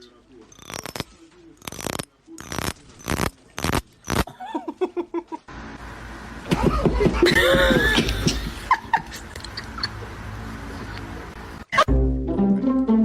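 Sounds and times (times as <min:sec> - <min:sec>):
person laughing: 0:04.3 - 0:05.4, 0:06.6 - 0:10.1.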